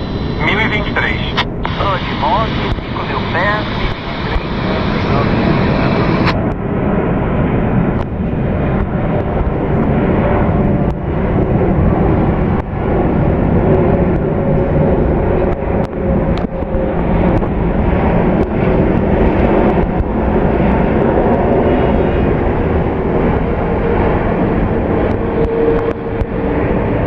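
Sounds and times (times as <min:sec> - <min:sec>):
jet engines running: 0:00.0 - 0:27.0.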